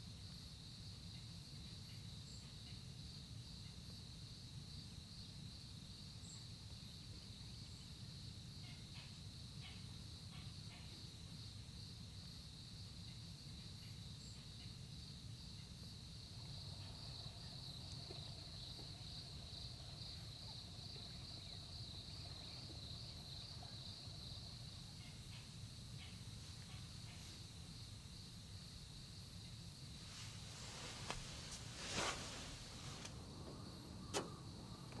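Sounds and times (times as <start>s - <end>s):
crickets trilling: 0.0s - 35.0s
low background rumble: 16.3s - 35.0s.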